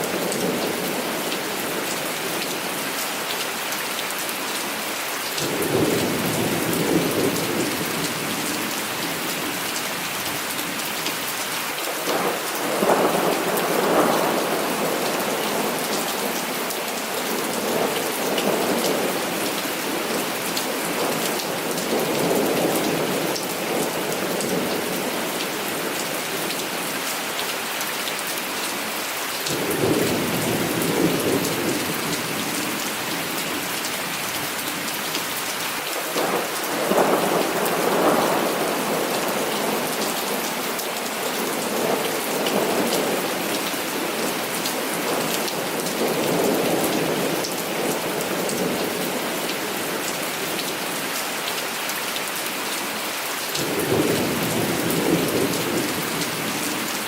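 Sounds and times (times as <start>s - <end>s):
heavy rain: 0.0s - 57.0s
thunder rumbling: 29.5s - 32.5s.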